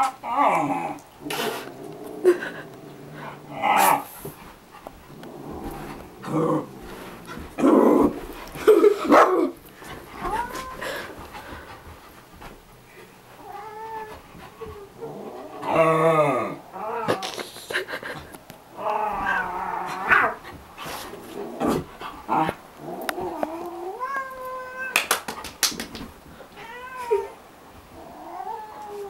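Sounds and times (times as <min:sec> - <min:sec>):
cat growling and yowling: 0:10.2 - 0:11.0, 0:15.0 - 0:17.2, 0:18.7 - 0:20.4, 0:21.5 - 0:25.0, 0:28.0 - 0:29.0.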